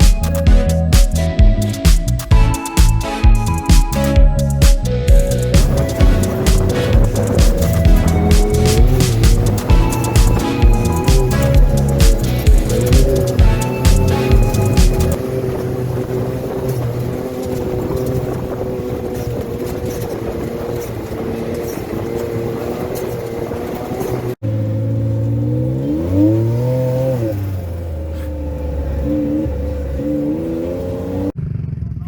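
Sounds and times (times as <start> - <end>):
throttle blips: 0.0 - 15.2
vehicle engine running and revving: 0.0 - 32.0.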